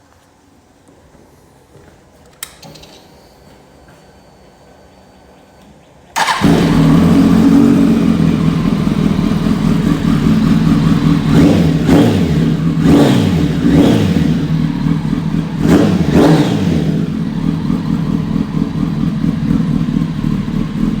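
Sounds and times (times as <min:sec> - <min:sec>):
motorcycle engine idling and revving: 0:06.2 - 0:21.0.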